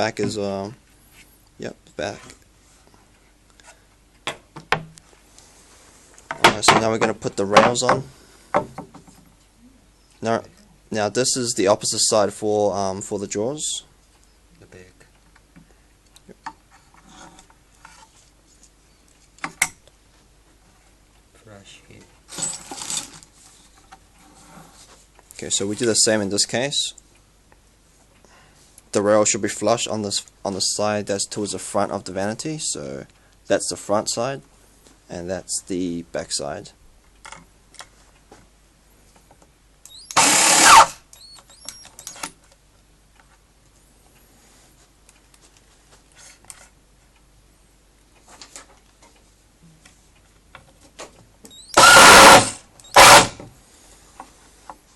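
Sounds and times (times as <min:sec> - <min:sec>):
cordless drill driving screw: 0:39.9 - 0:42.1, 0:51.5 - 0:53.4.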